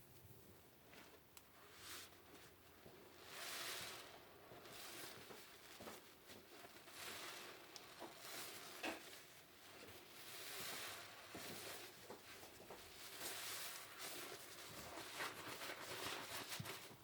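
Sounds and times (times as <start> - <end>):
sponge squishing in soapy water: 1.5 - 17.0.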